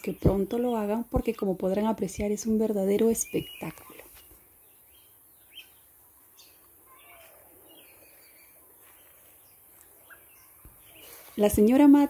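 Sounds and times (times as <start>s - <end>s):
faint bird chirps: 3.0s - 11.7s.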